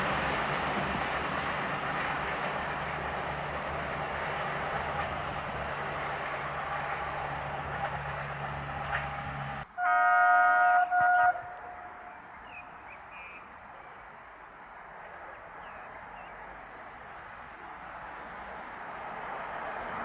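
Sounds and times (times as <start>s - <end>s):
locomotive horn blasts: 9.1s - 12.2s.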